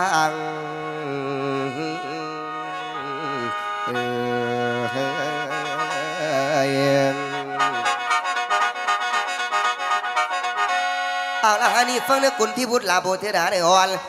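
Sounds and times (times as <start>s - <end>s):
mouth organ drone and melody: 0.0s - 13.4s.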